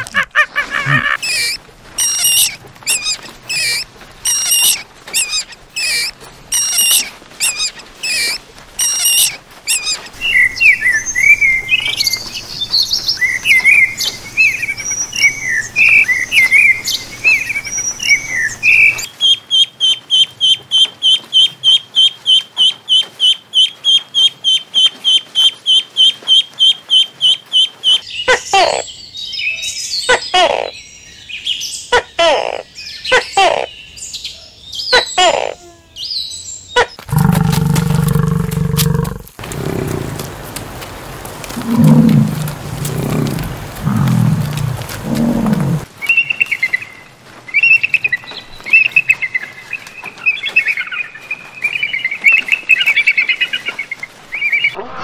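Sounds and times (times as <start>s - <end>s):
bird calls: 0.0s - 55.0s
fast high bird chirps: 0.8s - 12.2s
warbling bird song: 0.8s - 31.9s, 41.5s - 54.8s.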